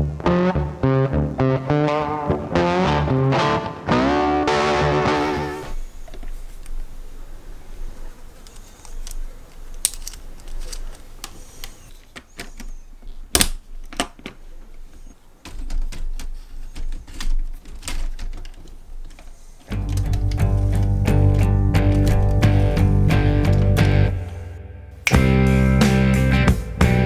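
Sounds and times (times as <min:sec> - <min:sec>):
clicks and light knocks: 0:05.2 - 0:25.2
guitar music: 0:19.7 - 0:27.0.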